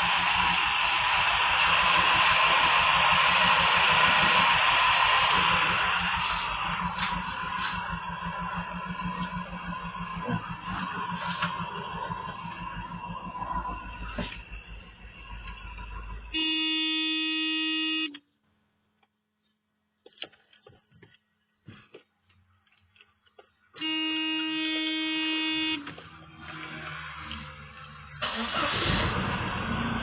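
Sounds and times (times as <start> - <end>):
rush of noise: 0.0 - 16.3
car horn blast: 16.3 - 18.2, 23.8 - 26.0.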